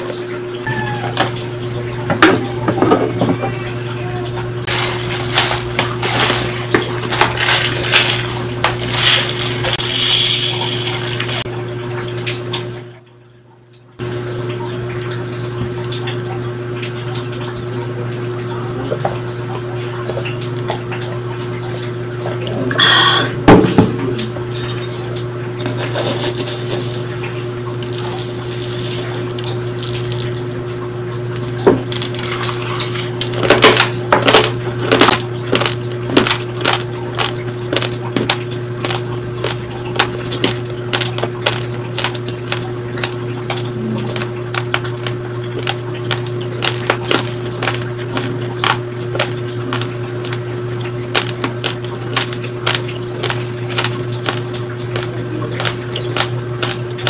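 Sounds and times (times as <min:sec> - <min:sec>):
steady electrical hum: 0:00.0 - 0:57.0
raw rice crunching: 0:04.7 - 0:11.5, 0:24.6 - 0:30.4, 0:31.4 - 0:57.0.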